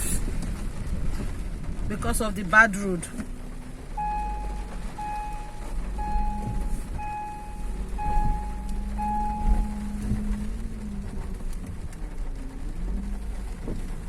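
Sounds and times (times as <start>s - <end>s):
low engine rumble: 0.0s - 14.0s
vehicle warning beeper: 3.9s - 11.3s.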